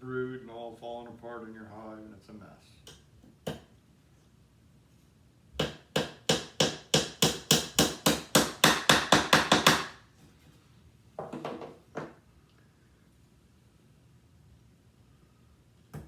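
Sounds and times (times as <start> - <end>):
hammer tapping nail into wood: 5.6 - 9.9.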